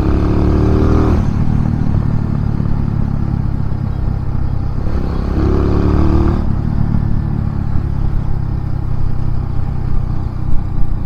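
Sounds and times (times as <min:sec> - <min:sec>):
motorcycle engine while riding: 0:00.0 - 0:11.0.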